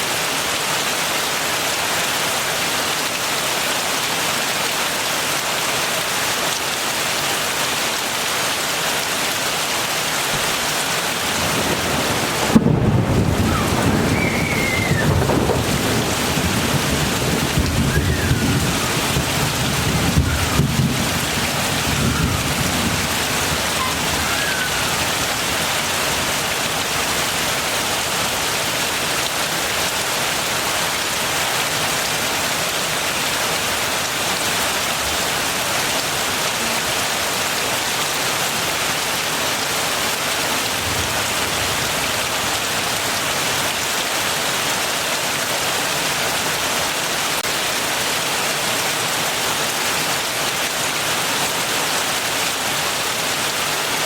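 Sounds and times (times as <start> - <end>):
heavy rain: 0.0 - 54.0
thunderclap with rolling rumble: 11.2 - 26.4.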